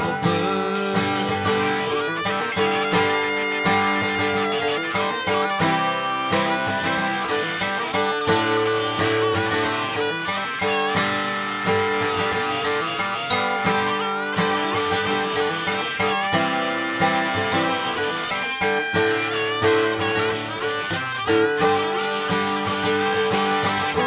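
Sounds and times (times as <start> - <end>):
country band instrumental: 0.0 - 24.0.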